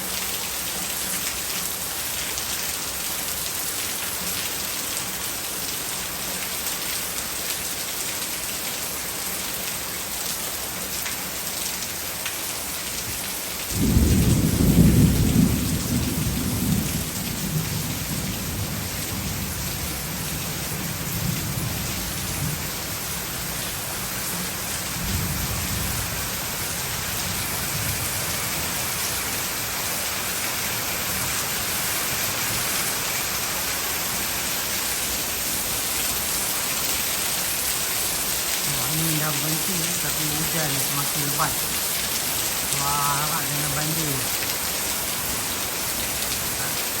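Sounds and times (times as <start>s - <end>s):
heavy rain pouring: 0.0s - 47.0s
loud thunderclap: 13.7s - 17.8s
faint roll of thunder: 13.7s - 19.4s.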